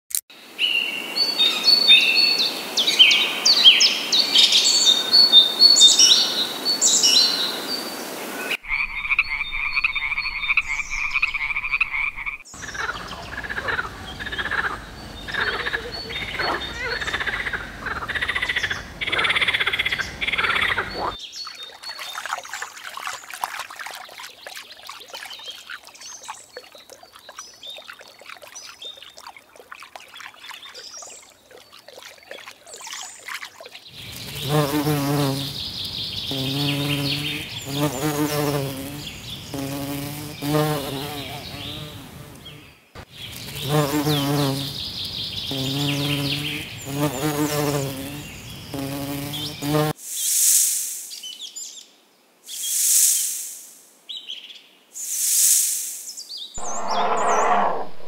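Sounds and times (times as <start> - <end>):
frog calls: 8.6 - 21.2
bumblebee buzzing: 34.1 - 42.6, 43.6 - 44.8, 45.5 - 49.9.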